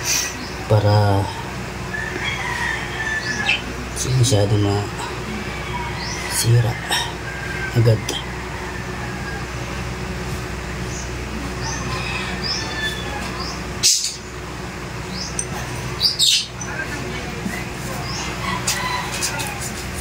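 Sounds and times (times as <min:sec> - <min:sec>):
steady low hum: 0:00.0 - 0:20.0
small birds chirping: 0:02.2 - 0:08.3, 0:10.6 - 0:19.8.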